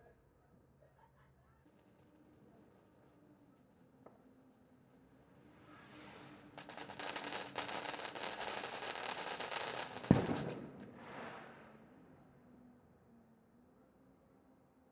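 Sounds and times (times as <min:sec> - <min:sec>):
fireworks crackling pops: 0:01.8 - 0:11.6
firework hiss: 0:05.8 - 0:11.6
loud firework bang: 0:06.6 - 0:11.6.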